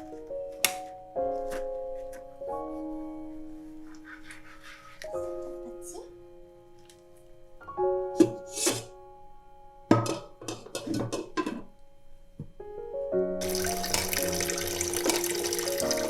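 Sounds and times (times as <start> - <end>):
soft background music: 0.0 - 16.0
water tap running: 13.4 - 16.0.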